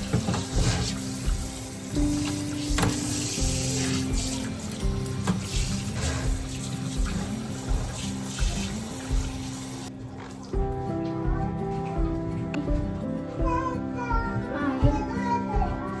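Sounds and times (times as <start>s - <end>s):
knocks of things handled in sink: 0.0s - 9.8s
water running from tap into sink: 0.0s - 10.6s
background music: 0.0s - 16.0s.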